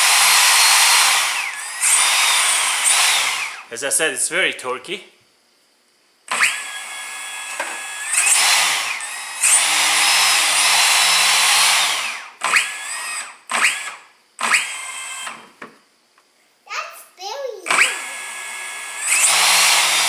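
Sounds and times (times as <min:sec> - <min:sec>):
cordless chainsaw motor whining: 0:00.0 - 0:03.7, 0:06.3 - 0:15.4, 0:17.7 - 0:20.0.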